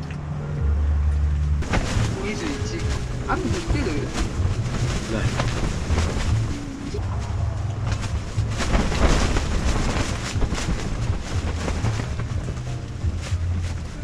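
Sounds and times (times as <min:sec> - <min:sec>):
gusty wind buffeting microphone: 0:01.5 - 0:14.0.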